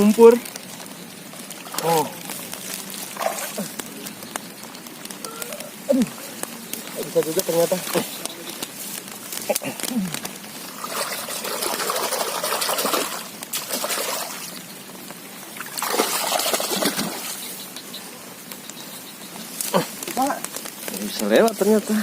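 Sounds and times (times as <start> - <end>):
muddy water splashing: 0.0 - 14.6, 15.2 - 17.6
wading through water: 1.6 - 3.9, 10.6 - 14.5.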